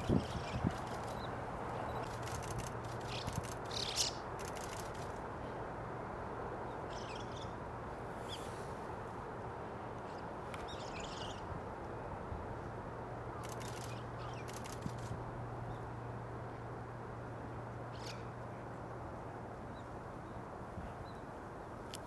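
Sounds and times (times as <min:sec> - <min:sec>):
background hiss: 0:00.0 - 0:19.5
bird calls and chirps: 0:03.0 - 0:04.7, 0:17.9 - 0:18.3.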